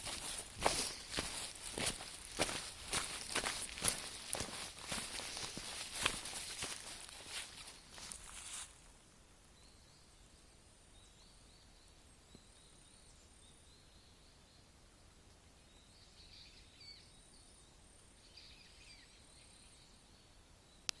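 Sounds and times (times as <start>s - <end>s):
songbirds singing: 0.0s - 8.6s, 9.5s - 21.0s
light outdoor hiss: 0.0s - 11.6s.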